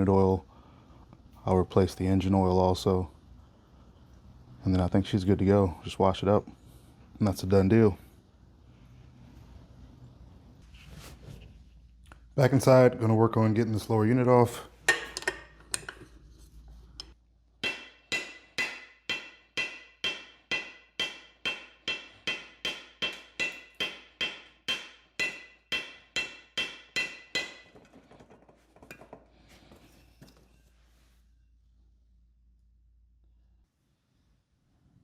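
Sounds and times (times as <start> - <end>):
hammer striking metal: 17.6 - 27.8.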